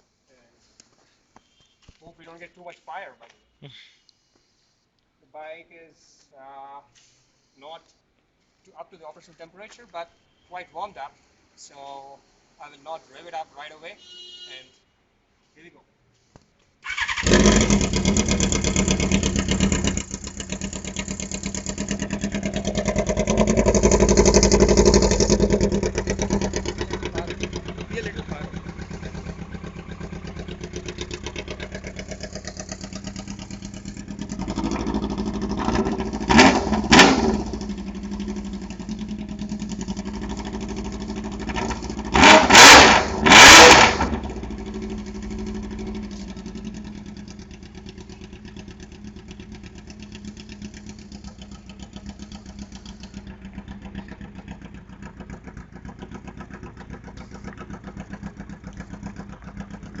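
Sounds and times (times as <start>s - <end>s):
motorcycle engine idling and revving: 16.9s - 60.0s.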